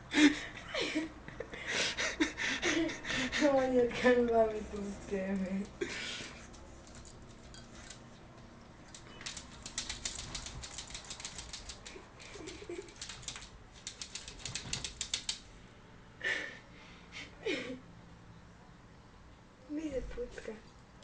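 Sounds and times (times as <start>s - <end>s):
dog claws clicking on hard floor: 6.6s - 8.1s, 8.8s - 15.4s.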